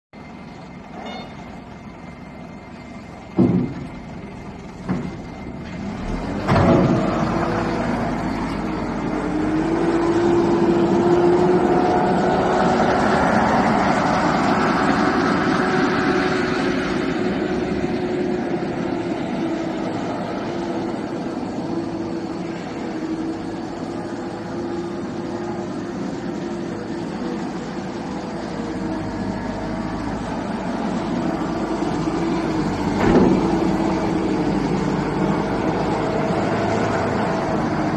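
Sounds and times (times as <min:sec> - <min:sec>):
loader engine running: 0:00.2 - 0:37.9
engine knocks: 0:03.2 - 0:07.4, 0:32.6 - 0:34.1
engine starting with a clunk: 0:03.3 - 0:04.0, 0:04.8 - 0:07.2, 0:32.9 - 0:33.6.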